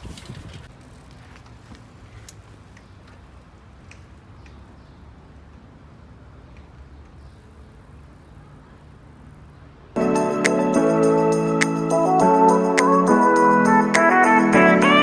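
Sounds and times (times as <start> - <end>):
bicycle riding rumble: 0.0 - 10.0
faint clicks: 0.2 - 5.7, 6.4 - 7.5.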